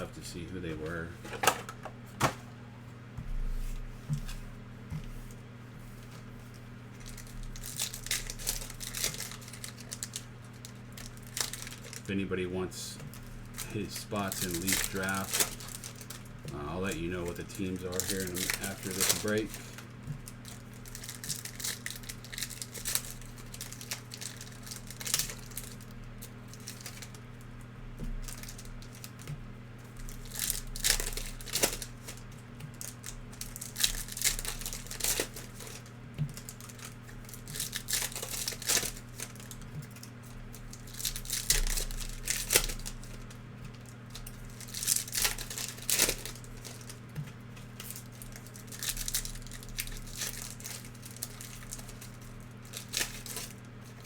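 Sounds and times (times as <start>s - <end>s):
steady low hum: 0.0s - 54.0s
card pack wrappers crinkling: 6.5s - 54.0s
cards handled: 13.6s - 15.8s.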